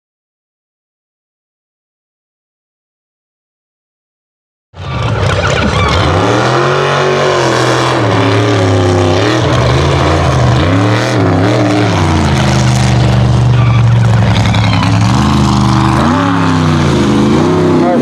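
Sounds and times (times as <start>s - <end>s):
truck engine revving: 4.8s - 18.0s.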